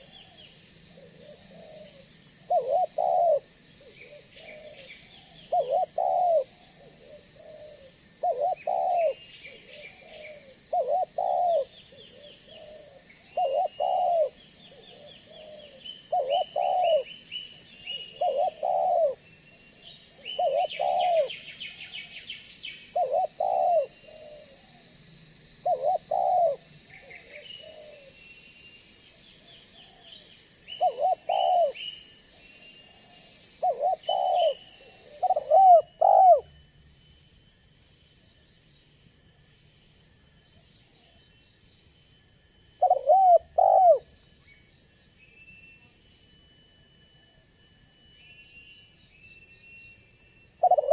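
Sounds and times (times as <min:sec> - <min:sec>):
dove cooing: 0:00.0 - 0:17.1, 0:18.0 - 0:19.2, 0:20.2 - 0:21.4, 0:22.9 - 0:24.8, 0:25.6 - 0:28.2, 0:30.8 - 0:31.8, 0:33.0 - 0:36.5, 0:42.8 - 0:44.1, 0:50.6 - 0:50.9
small birds chirping: 0:07.0 - 0:24.4, 0:33.6 - 0:36.4.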